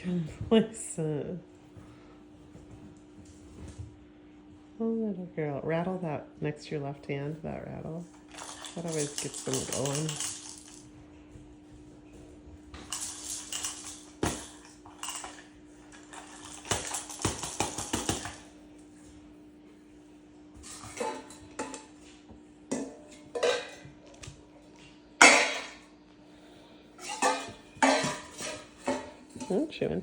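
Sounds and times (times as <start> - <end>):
faint steady hum: 0.0 - 30.0
rattle shaken with metallic clatter: 8.3 - 10.9, 12.8 - 18.5.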